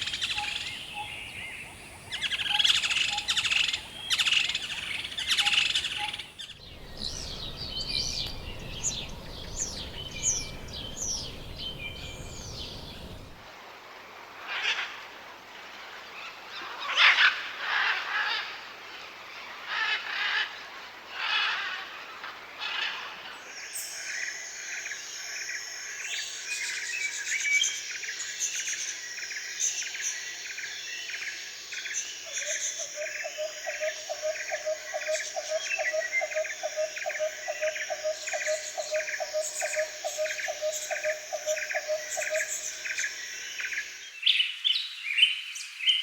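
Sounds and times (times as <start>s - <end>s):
fast pulsing lower calls: 0.0s - 13.4s
loud bird calls: 0.0s - 13.4s, 32.3s - 44.2s
dense chorus of bird calls: 0.0s - 13.5s, 19.5s - 46.0s.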